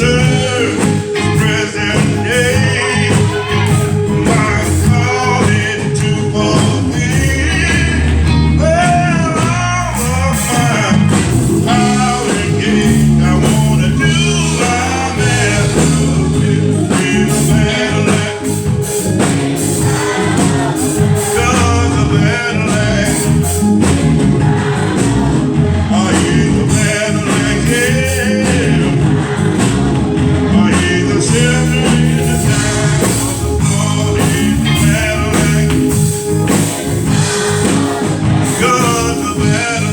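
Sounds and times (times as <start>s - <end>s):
bass line: 0.0s - 39.9s
church band playing: 0.0s - 39.9s
drums: 0.0s - 39.9s
voices singing: 0.0s - 39.9s.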